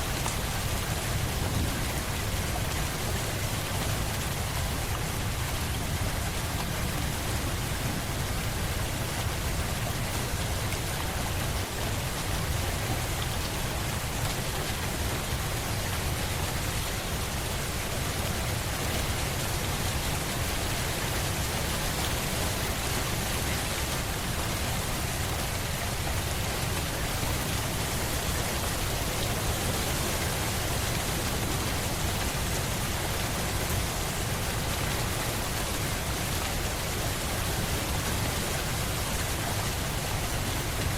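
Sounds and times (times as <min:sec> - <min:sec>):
rain pattering on a surface: 0:00.0 - 0:40.9.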